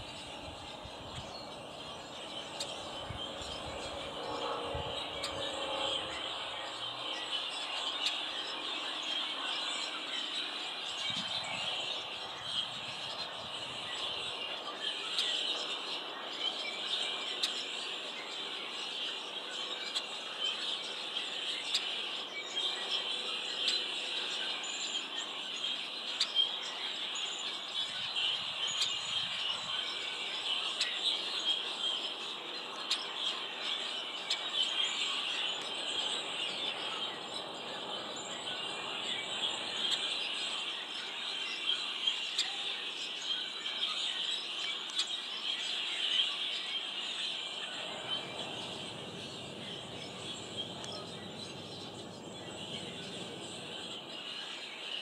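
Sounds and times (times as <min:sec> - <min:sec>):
small birds chirping: 0:21.0 - 0:55.0.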